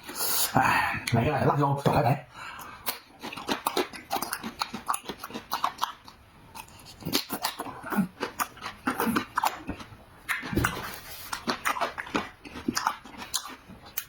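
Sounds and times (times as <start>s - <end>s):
chewing and crunching: 2.6s - 14.0s.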